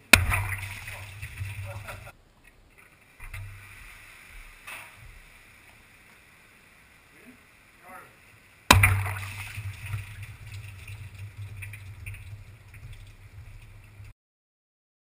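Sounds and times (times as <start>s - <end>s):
irregular crackling: 0.0s - 6.3s, 8.7s - 14.1s.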